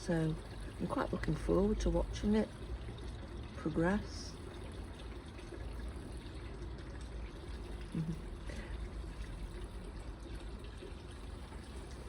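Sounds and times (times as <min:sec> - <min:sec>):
pond water trickling: 0:00.0 - 0:12.0.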